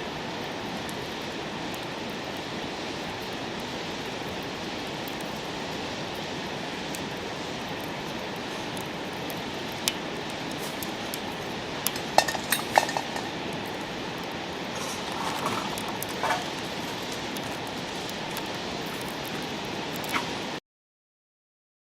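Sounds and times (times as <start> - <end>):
steady rushing hiss: 0.0 - 20.6
metal utensils clinking on cookware: 11.9 - 13.4, 14.8 - 17.6.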